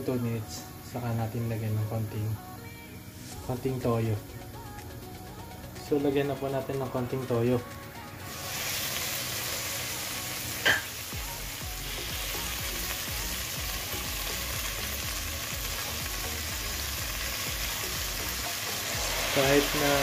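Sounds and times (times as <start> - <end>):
food sizzling in pans: 8.2 - 20.0.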